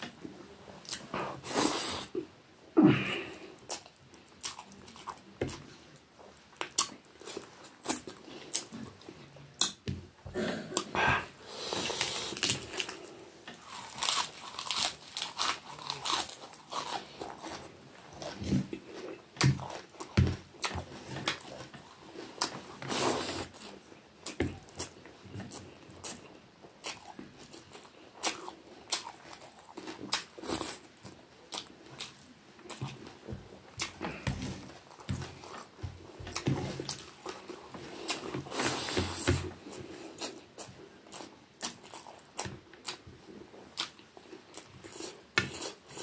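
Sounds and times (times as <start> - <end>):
chewing and crunching: 3.3 - 9.8, 11.7 - 46.0.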